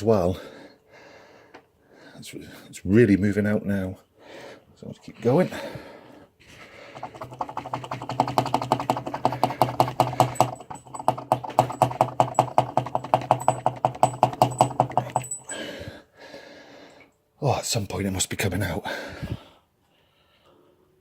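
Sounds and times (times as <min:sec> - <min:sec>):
rapid metallic clicking and knocking: 0:06.9 - 0:15.5.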